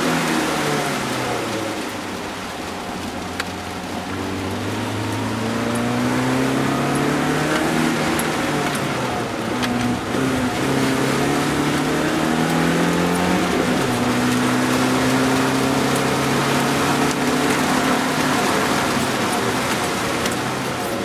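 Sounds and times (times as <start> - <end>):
car engine revving: 0.0 - 21.0
rain hiss: 0.0 - 21.0.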